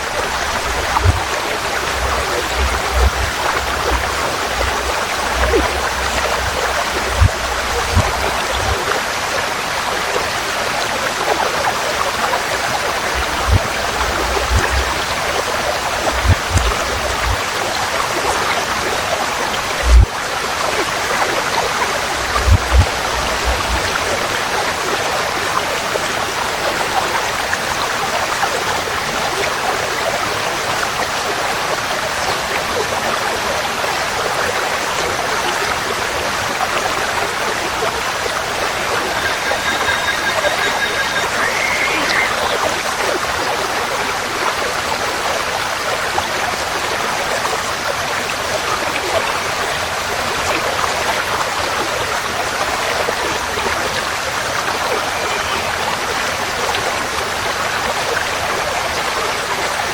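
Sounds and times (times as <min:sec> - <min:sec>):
stream flowing: 0:00.0 - 0:59.9
faint bird call: 0:38.5 - 0:42.8.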